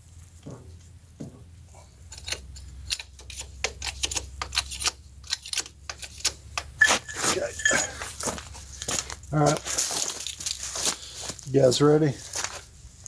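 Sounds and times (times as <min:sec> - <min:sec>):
low steady hum: 0:00.0 - 0:13.0
metal tools clicking: 0:02.1 - 0:08.1.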